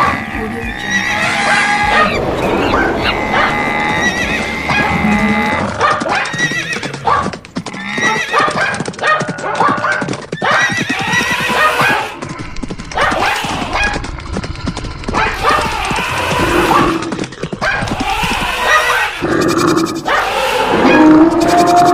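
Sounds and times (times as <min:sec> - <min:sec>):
galloping hooves clattering: 0:00.0 - 0:20.2
horses whinnying: 0:00.0 - 0:21.9.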